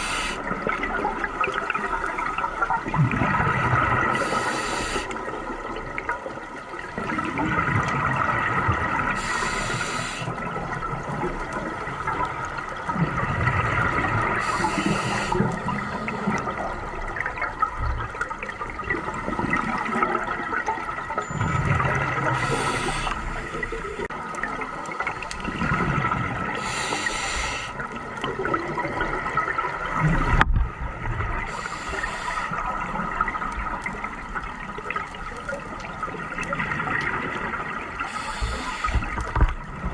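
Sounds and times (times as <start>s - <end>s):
regulator inhalation hiss: 0.0s - 0.5s, 4.1s - 5.2s, 9.2s - 10.4s, 14.4s - 16.3s, 22.4s - 24.1s, 26.6s - 27.8s, 31.5s - 32.6s, 38.1s - 39.2s
exhaled bubbles gurgling: 0.0s - 39.9s.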